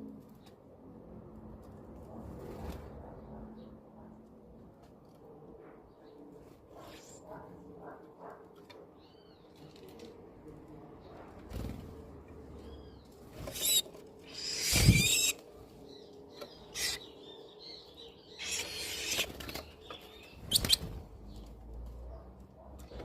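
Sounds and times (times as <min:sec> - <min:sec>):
bird calling in harsh bursts: 0:13.4 - 0:15.4, 0:16.6 - 0:17.1, 0:18.2 - 0:19.7, 0:20.4 - 0:20.9.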